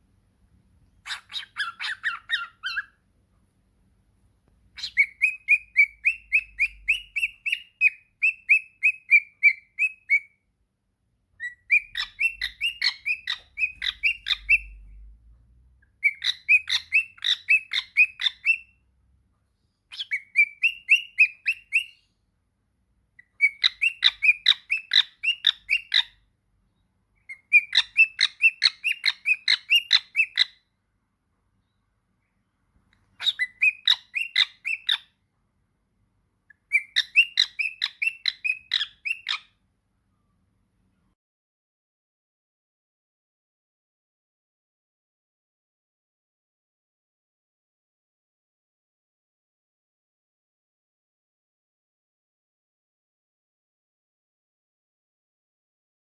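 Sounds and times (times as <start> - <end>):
parrot chirping rapidly: 1.0 - 3.0, 4.7 - 10.4, 11.4 - 15.0, 16.0 - 18.8, 19.9 - 22.2, 23.2 - 26.3, 27.2 - 30.6, 33.0 - 35.2, 36.5 - 39.6.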